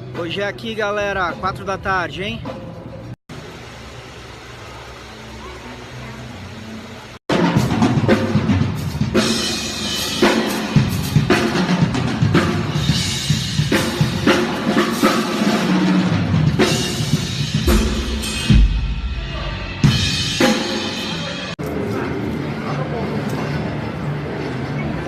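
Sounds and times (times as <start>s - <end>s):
music: 0.0s - 3.2s, 5.4s - 22.5s
drum kit playing: 7.3s - 21.6s.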